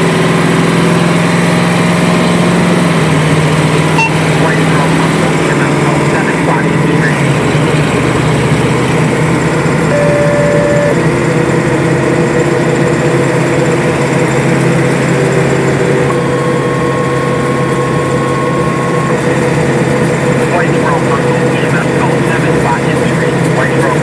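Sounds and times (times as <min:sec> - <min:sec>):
truck engine and road noise: 0:00.0 - 0:24.0.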